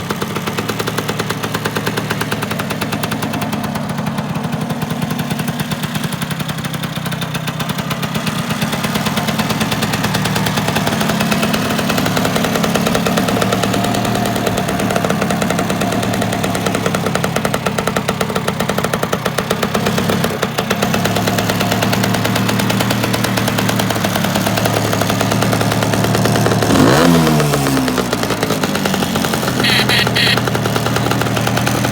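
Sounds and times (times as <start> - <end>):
two-stroke scooter engine idling: 0.0 - 31.9
throttle blip revving engine: 29.6 - 30.8.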